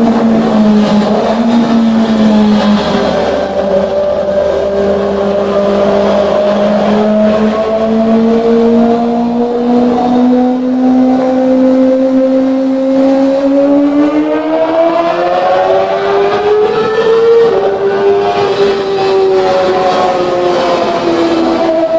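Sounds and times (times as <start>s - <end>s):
motorcycle engine revving high: 0.0s - 21.9s.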